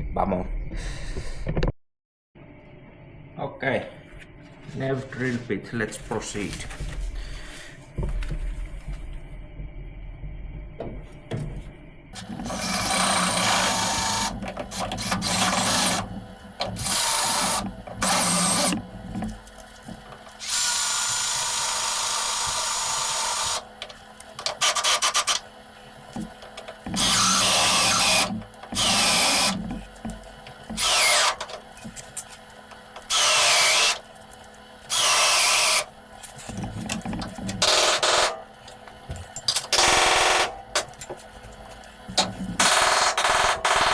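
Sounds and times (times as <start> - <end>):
electric drill boring through steel: 12.2 - 19.2, 19.9 - 25.4, 26.4 - 31.7, 32.8 - 34.1, 34.8 - 36.0, 37.6 - 38.4, 42.6 - 43.9.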